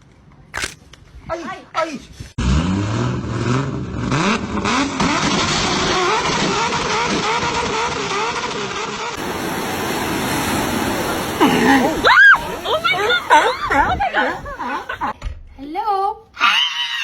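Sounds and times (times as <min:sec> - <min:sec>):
engine revving: 0:02.4 - 0:13.9.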